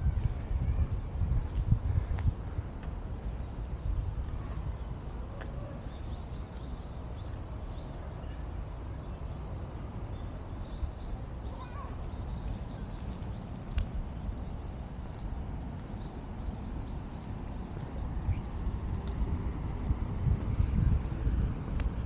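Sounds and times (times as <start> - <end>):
small birds chirping: 0.2 - 22.0
low steady rumble: 11.8 - 22.0.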